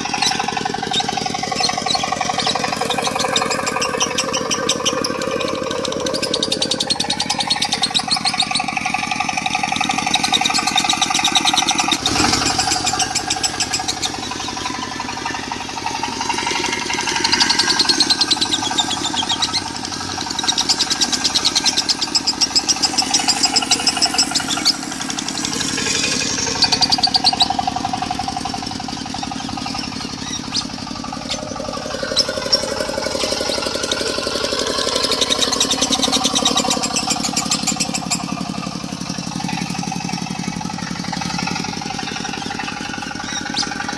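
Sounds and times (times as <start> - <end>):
diesel engine idling: 0.0 - 43.9
lovebird singing: 0.0 - 43.9.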